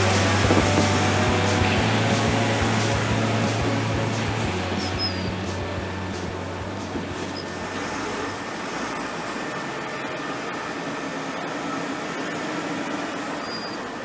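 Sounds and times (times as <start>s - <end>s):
low rumble: 0.0s - 8.1s
truck engine and road noise: 0.0s - 14.0s.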